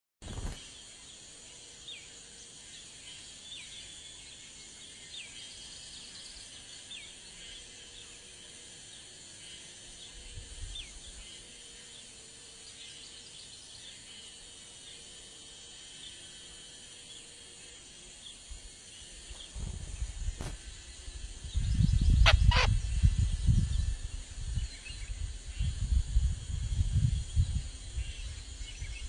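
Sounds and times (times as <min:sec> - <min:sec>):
high insect drone: 0:00.3 - 0:29.0
short falling bird chirps: 0:22.2 - 0:22.8.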